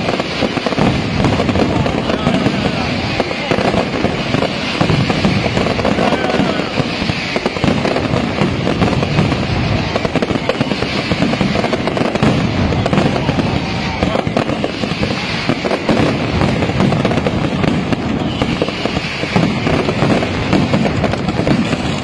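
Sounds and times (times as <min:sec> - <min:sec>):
aerial fireworks exploding: 0:00.0 - 0:22.0
firecracker bangs and crackling: 0:00.0 - 0:22.0.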